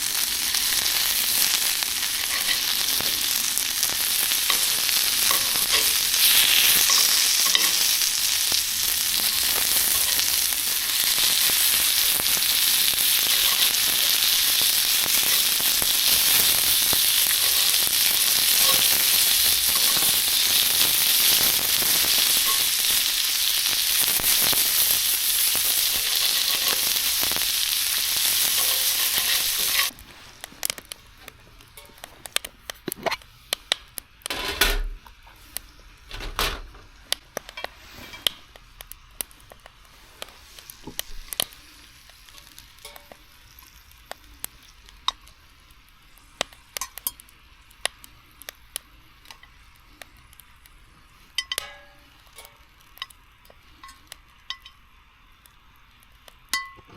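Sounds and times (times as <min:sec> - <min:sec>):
food frying sizzle: 0:00.0 - 0:56.9.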